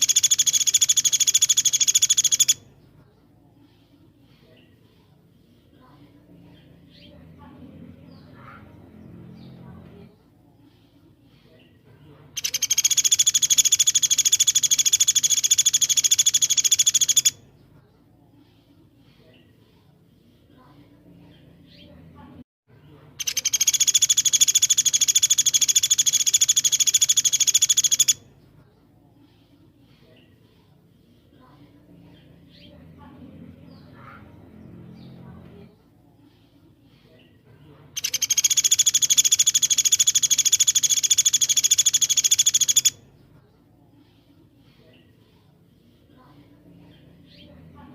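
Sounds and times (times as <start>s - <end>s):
songbird rapid trill: 0.0s - 2.7s, 12.4s - 17.4s, 23.2s - 28.3s, 38.0s - 43.0s.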